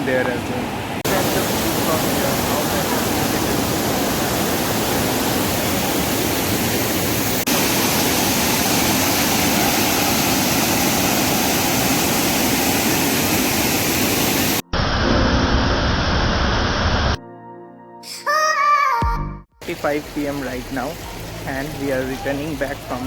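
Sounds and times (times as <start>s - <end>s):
waterfall rushing: 0.0s - 17.2s, 19.6s - 23.0s
music: 17.2s - 19.6s.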